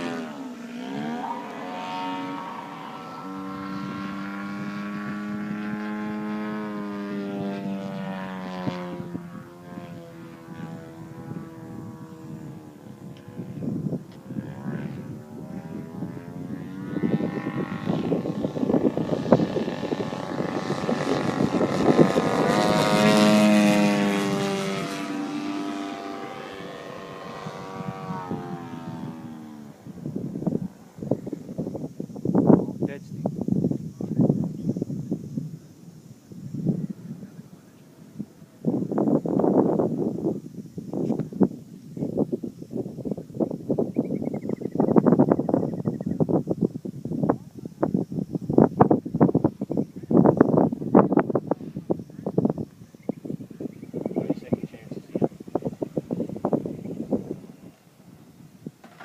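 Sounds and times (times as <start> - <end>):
model plane propeller engine: 5.7 - 24.3.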